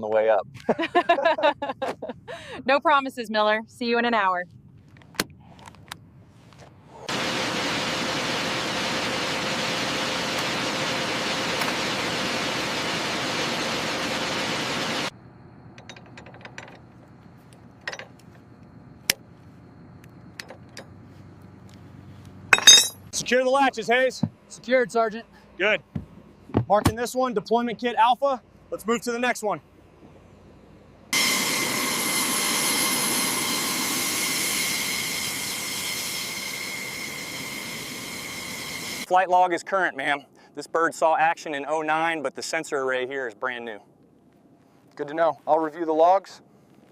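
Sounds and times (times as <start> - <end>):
turbine engine running: 7.0 - 15.1, 29.8 - 39.1.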